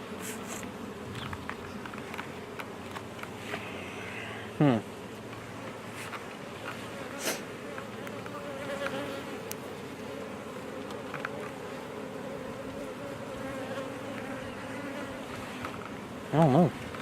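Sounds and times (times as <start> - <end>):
bees buzzing: 0.0 - 17.0
bee buzzing past close: 6.4 - 16.8.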